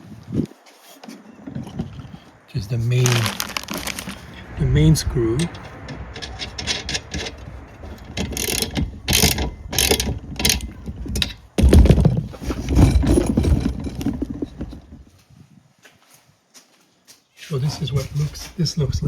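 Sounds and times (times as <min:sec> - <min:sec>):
metal clunking: 0:03.0 - 0:15.0.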